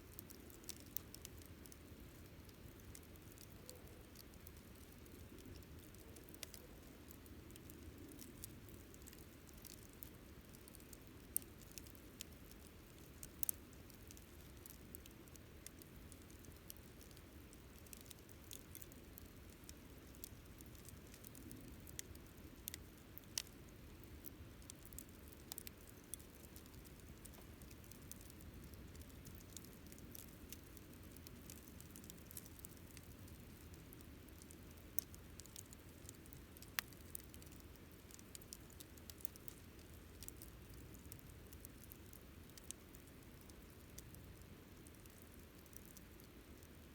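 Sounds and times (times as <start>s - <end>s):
soft rush of burning fire: 0.0s - 46.9s
campfire snaps and pops: 0.1s - 46.9s.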